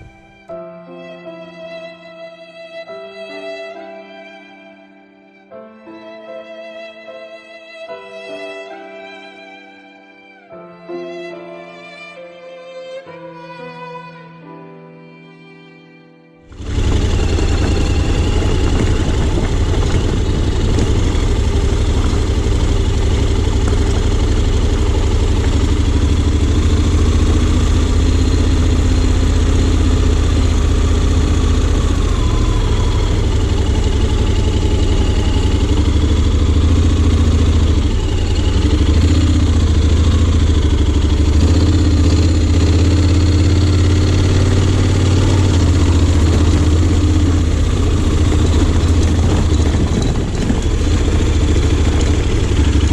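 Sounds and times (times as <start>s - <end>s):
motorcycle engine running: 0.0s - 0.3s, 16.5s - 52.9s.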